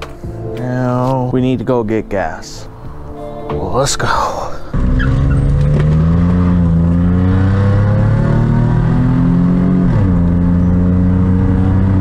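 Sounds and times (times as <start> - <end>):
car engine accelerating: 4.7 - 12.0.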